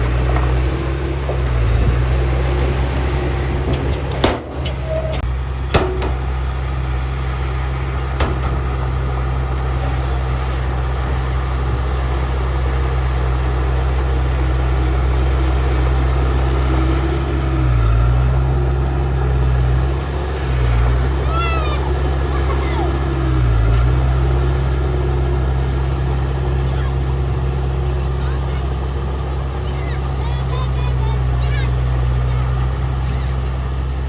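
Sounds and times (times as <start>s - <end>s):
diesel machinery engine droning: 0.0s - 34.0s
sharp knocks: 0.1s - 6.4s, 8.1s - 8.7s.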